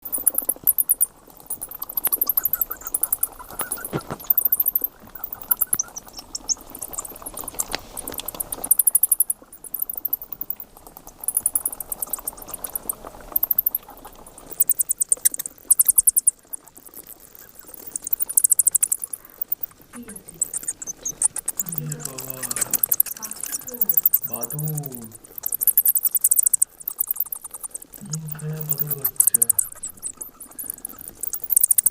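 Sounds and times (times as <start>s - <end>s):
bat chittering calls: 0.0s - 7.7s, 17.5s - 31.9s.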